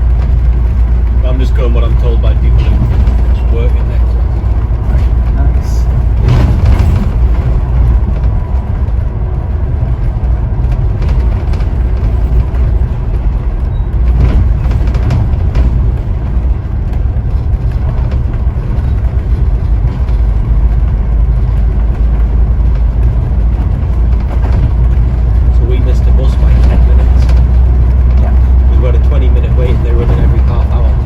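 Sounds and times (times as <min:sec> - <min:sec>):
bus engine and road rumble: 0:00.0 - 0:31.0
faint knocks and rattles: 0:00.0 - 0:31.0.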